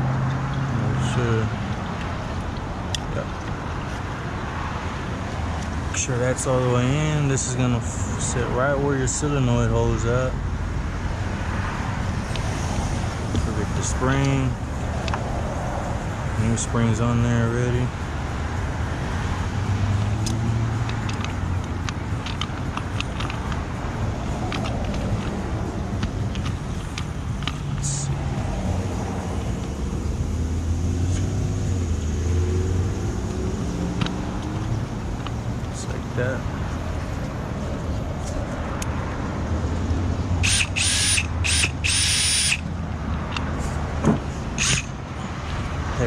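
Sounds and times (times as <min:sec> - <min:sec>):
engine low rumble: 0:00.0 - 0:04.5, 0:05.1 - 0:46.0
cordless drill whirring: 0:40.4 - 0:42.6, 0:44.6 - 0:44.9.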